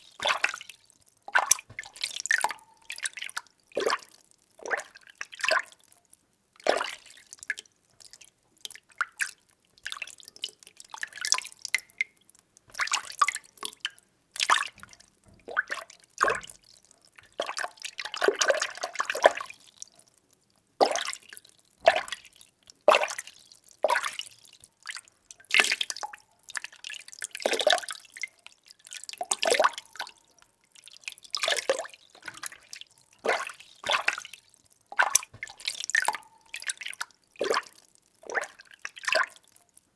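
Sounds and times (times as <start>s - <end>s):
water stirred by hand sloshing: 0.0s - 5.8s, 12.7s - 19.8s, 29.0s - 39.6s.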